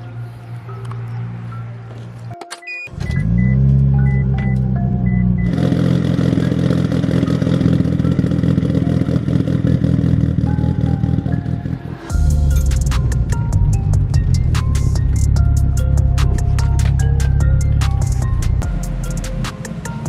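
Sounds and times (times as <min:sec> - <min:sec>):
car engine starting and running: 0:00.0 - 0:20.0.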